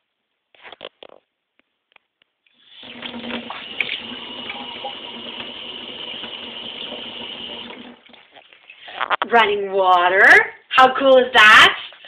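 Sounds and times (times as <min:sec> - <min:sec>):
water running from a tap: 0:02.6 - 0:08.5.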